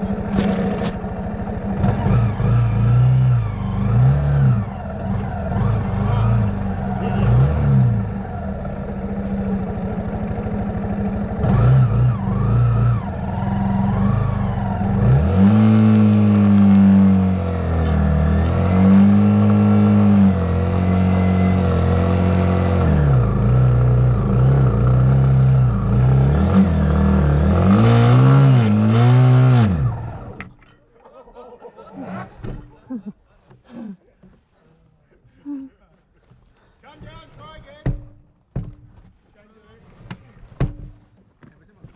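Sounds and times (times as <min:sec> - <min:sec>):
dirt bike engine revving: 0:00.0 - 0:30.5.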